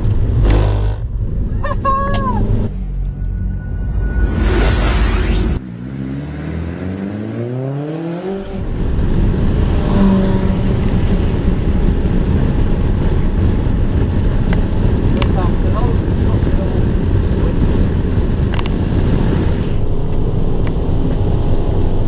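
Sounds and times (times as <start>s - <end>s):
road and wind noise: 0.0s - 22.0s
car engine revving up: 2.2s - 15.1s
loud rising rush: 2.3s - 15.0s.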